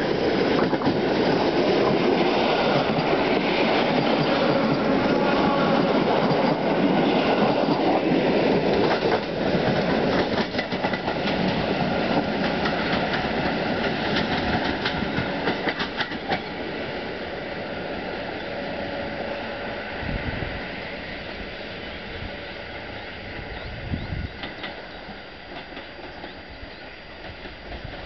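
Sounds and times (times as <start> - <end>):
electric train rumble: 0.0 - 28.0.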